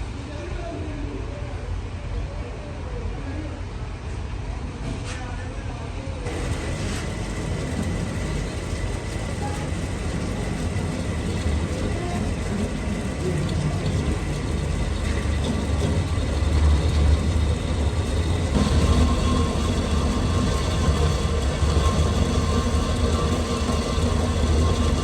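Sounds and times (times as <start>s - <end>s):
machinery humming with whine: 6.2s - 25.0s.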